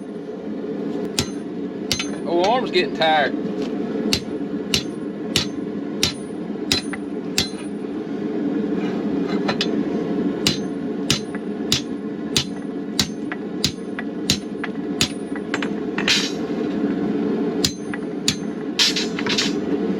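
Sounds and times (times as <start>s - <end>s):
gas forge burner roaring: 0.0s - 19.9s
hammer striking steel on anvil: 1.1s - 2.7s, 4.1s - 7.8s, 9.5s - 16.5s, 17.6s - 19.6s.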